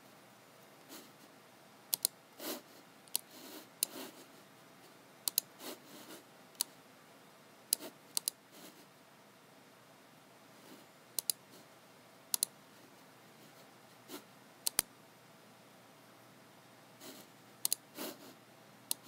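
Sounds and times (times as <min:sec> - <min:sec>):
mouse clicks: 0:01.9 - 0:02.2, 0:05.2 - 0:05.5, 0:06.6 - 0:06.8, 0:07.7 - 0:08.4, 0:11.2 - 0:11.4, 0:12.3 - 0:12.5, 0:14.6 - 0:14.9, 0:17.6 - 0:17.8.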